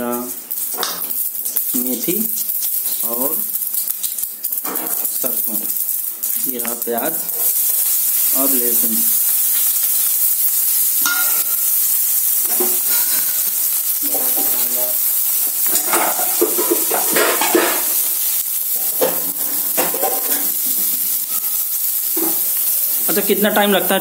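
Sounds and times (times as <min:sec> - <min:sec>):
onion and spices sizzling in oil: 0:00.0 - 0:24.0.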